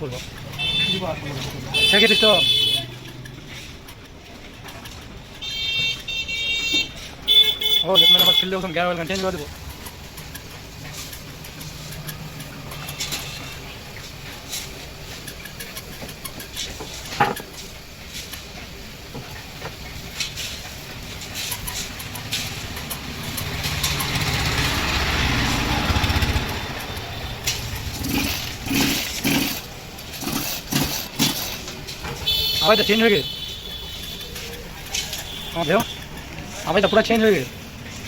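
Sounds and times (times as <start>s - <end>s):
small petrol engine running: 8.2s - 17.7s, 20.6s - 38.0s.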